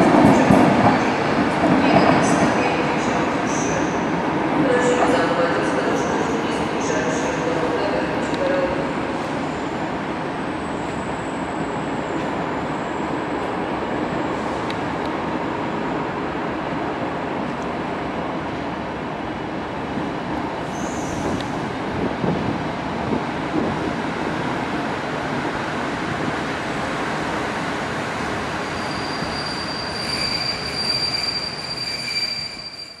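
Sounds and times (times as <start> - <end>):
train wheels rumbling on rail: 0.0 - 33.0
high wheel squeal: 28.6 - 33.0.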